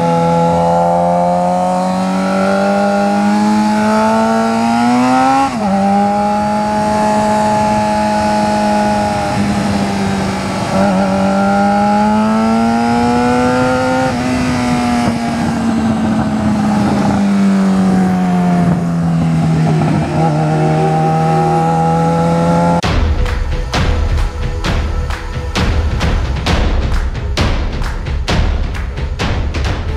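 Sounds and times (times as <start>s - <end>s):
loud motorcycle engine at high revs: 0.0s - 22.9s.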